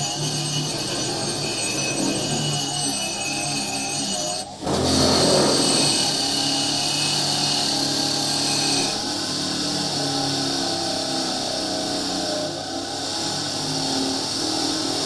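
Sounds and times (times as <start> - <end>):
power tool whining: 0.0 - 15.0.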